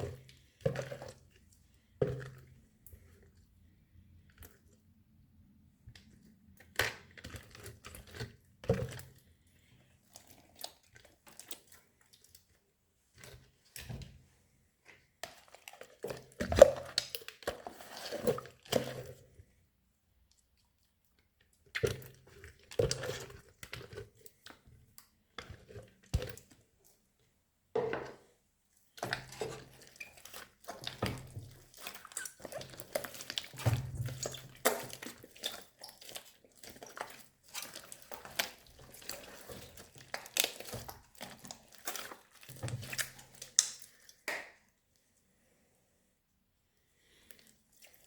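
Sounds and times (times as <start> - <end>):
slime squished by hand: 29.0 - 44.7.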